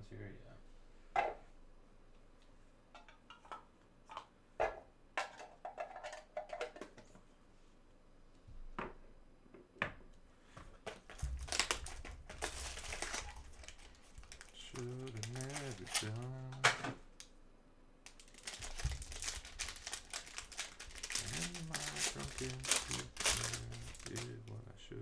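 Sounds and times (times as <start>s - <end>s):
cards rustling and sliding: 11.0s - 16.8s, 18.1s - 24.4s
cards clicking and tapping: 18.1s - 24.4s.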